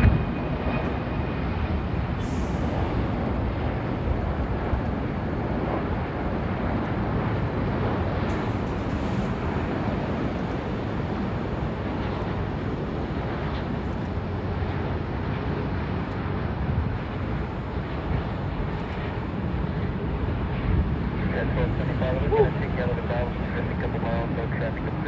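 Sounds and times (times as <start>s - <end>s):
wind buffeting microphone: 0.0s - 24.9s
jet airliner rumble: 0.0s - 25.0s.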